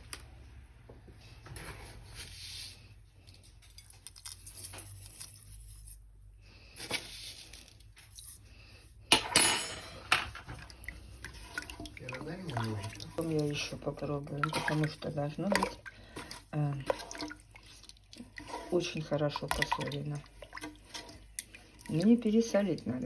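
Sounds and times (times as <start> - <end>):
pot and utensils clattering: 9.1 - 17.6, 18.2 - 23.0.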